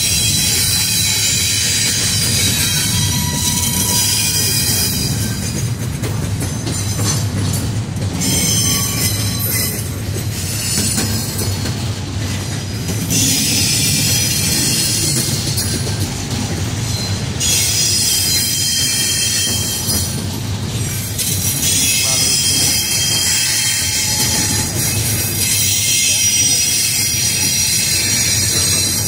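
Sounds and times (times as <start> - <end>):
high-pitched wheel squeal: 0.0 - 5.4, 16.9 - 20.1, 21.6 - 29.0
low rumble of train wheels: 0.0 - 29.0.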